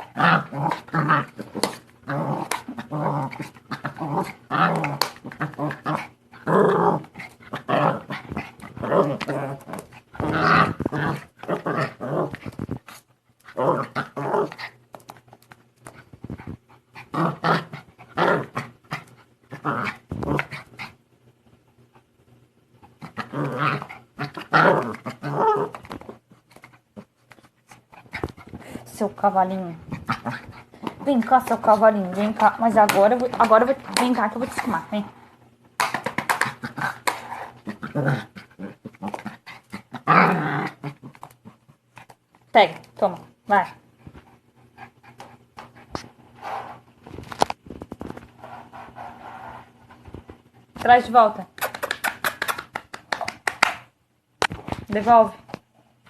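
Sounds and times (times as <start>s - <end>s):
young dog growling: 0.0s - 14.8s, 16.3s - 21.0s, 22.8s - 27.1s, 29.7s - 35.2s, 36.3s - 41.8s.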